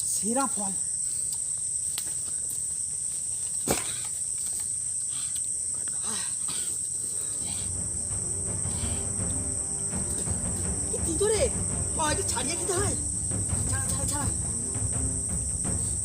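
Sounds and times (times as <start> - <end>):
high-pitched insect chirring: 7.4 - 16.0.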